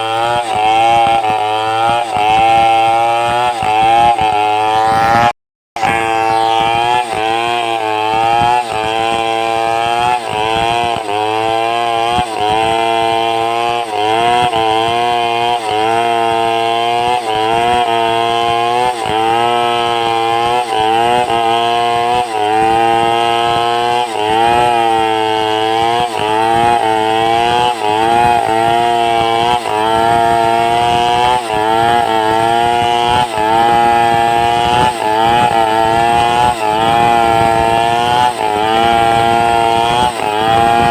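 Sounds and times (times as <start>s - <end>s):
chainsaw ripping log: 0.0s - 40.9s.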